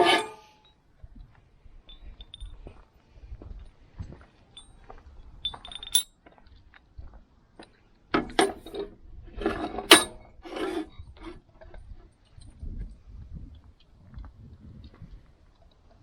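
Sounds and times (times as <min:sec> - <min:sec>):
metal parts and tools clinking: 0:00.0 - 0:00.5, 0:01.9 - 0:02.6, 0:05.4 - 0:06.1, 0:08.2 - 0:10.9.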